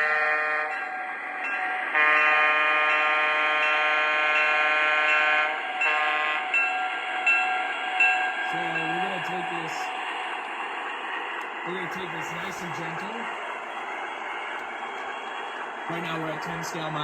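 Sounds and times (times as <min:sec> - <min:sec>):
model train horn blasts: 0:00.0 - 0:00.8, 0:01.9 - 0:06.6
model train running: 0:00.0 - 0:17.0.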